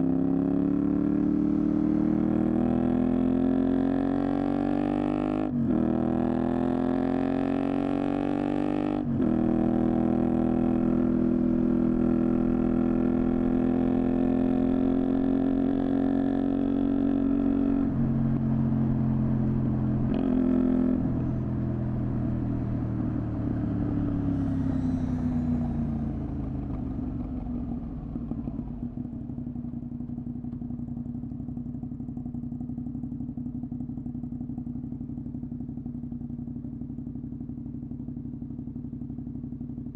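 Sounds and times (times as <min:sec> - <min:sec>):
motorcycle engine revving: 0:00.0 - 0:30.2
motorcycle engine idling: 0:21.1 - 0:39.9.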